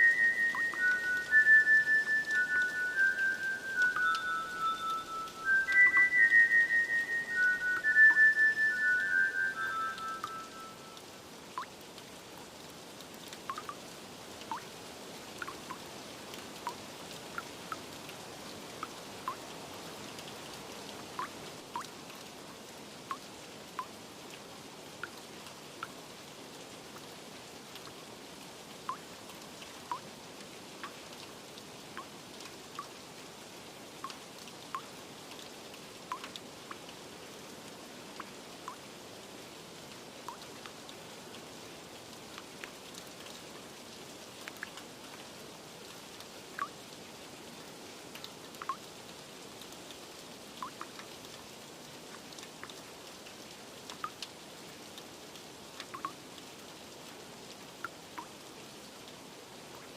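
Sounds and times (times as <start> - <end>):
water drops plinking: 0.0 - 11.0, 13.5 - 13.8, 15.4 - 15.8, 21.2 - 21.9, 36.1 - 36.3, 55.9 - 56.2
rain hiss: 0.0 - 59.9.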